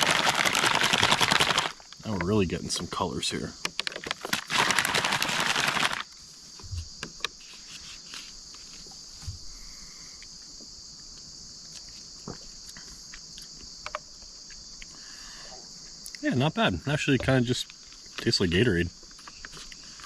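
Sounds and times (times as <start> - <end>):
loud rustling: 0.0 - 1.9, 4.1 - 6.0
crickets chirping: 0.0 - 20.0
handling clicks and knocks: 3.6 - 4.3.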